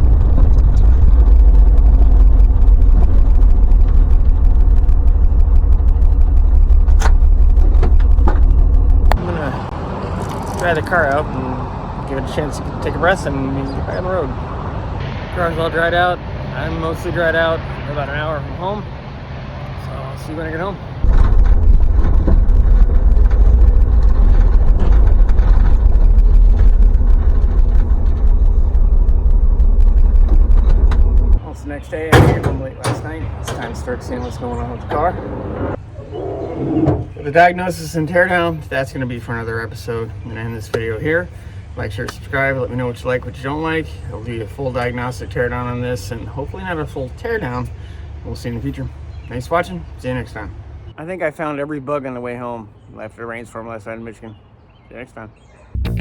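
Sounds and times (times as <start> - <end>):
wind noise: 0.0 - 11.0, 21.0 - 31.4
car engine rumble: 0.0 - 48.3, 55.8 - 56.0
road and wind noise: 0.0 - 56.0
sharp clicks: 0.4 - 9.2, 21.1 - 31.4.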